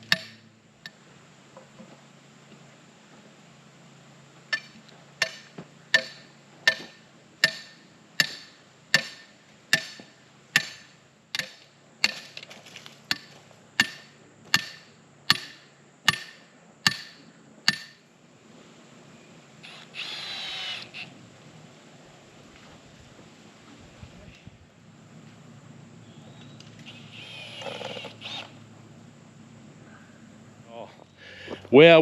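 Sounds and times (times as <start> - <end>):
hammer blows ringing: 4.6 - 12.2.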